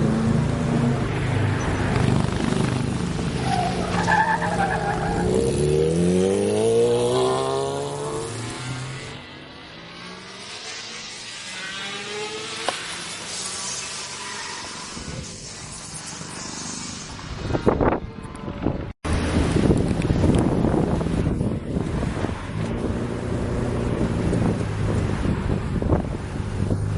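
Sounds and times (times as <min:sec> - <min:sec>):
car engine revving: 0:04.9 - 0:14.1.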